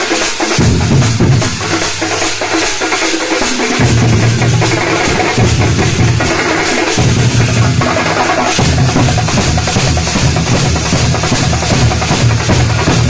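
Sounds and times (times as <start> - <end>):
deep bass drum booms: 3.8 - 8.0.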